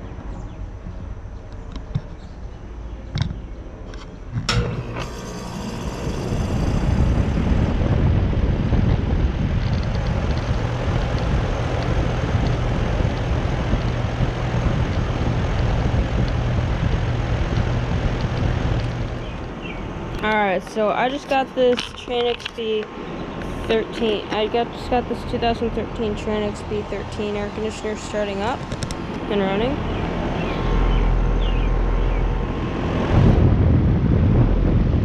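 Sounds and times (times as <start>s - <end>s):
air conditioner unit humming: 3.4s - 35.0s
contactor click: 4.4s - 7.5s.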